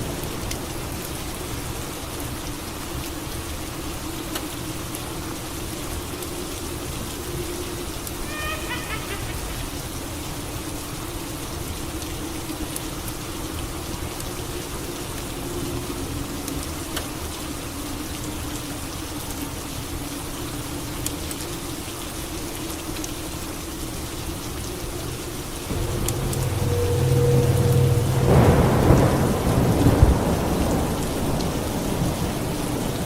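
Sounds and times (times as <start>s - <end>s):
steady rain: 0.0s - 33.0s
low steady drone: 25.7s - 31.1s.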